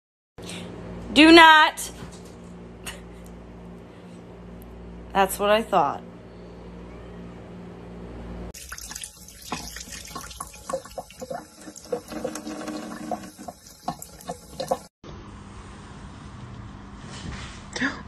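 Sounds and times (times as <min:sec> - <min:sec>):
cat lapping water: 0:08.6 - 0:14.9
faucet running into sink: 0:08.6 - 0:14.9.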